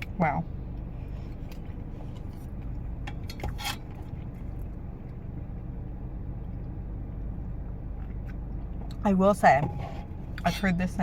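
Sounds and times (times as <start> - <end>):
low hum in car cabin: 0.0 - 11.0.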